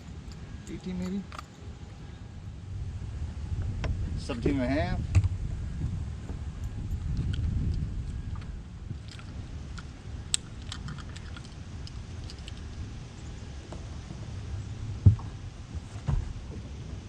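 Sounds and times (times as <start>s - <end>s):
steady low rumble: 0.0s - 17.0s
loud thump: 15.0s - 15.4s.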